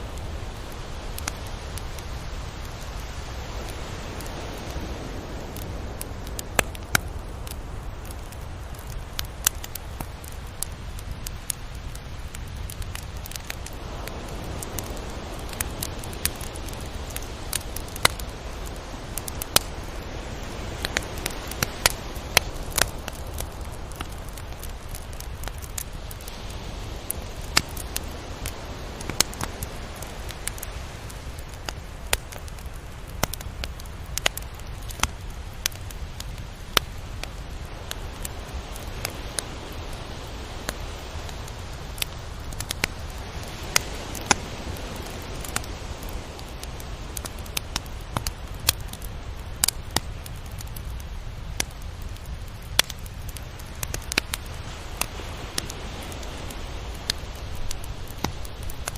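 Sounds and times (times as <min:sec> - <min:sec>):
surf washing: 0:00.0 - 0:49.5, 0:53.1 - 0:58.9
sharp clicks and crackles: 0:27.0 - 0:39.5, 0:41.5 - 0:58.9.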